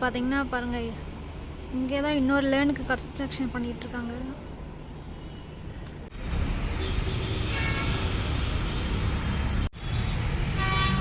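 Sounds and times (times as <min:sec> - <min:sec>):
road traffic passing: 0:00.0 - 0:11.0
vehicle horn toots: 0:06.8 - 0:08.2, 0:10.5 - 0:11.0.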